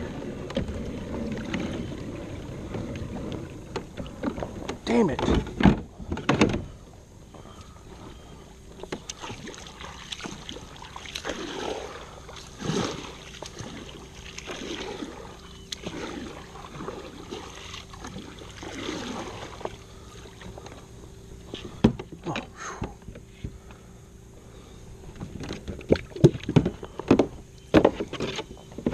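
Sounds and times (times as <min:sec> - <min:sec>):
water splashing around kayak: 0:00.0 - 0:28.9
light knocks against hull: 0:25.1 - 0:28.9.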